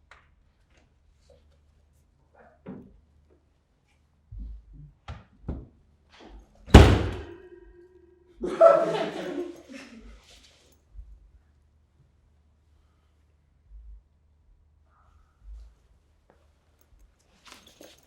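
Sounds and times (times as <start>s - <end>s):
door slamming: 6.7s - 7.5s.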